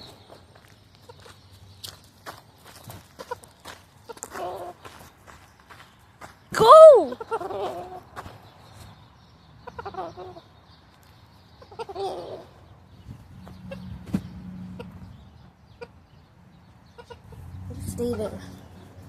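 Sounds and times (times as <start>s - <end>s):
rooster clucking: 7.1s - 8.1s, 9.6s - 10.5s, 11.6s - 12.6s, 14.6s - 15.1s, 16.9s - 18.5s.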